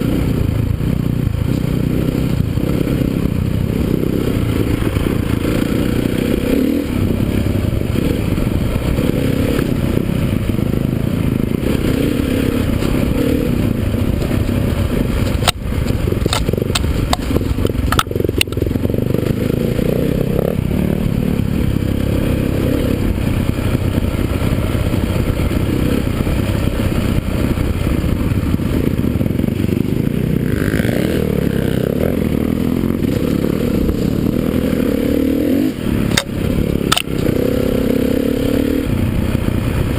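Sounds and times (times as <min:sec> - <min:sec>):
dirt bike engines rumbling: 0:00.0 - 0:39.9
sharp clicks or knocks: 0:16.2 - 0:18.6, 0:36.1 - 0:37.3.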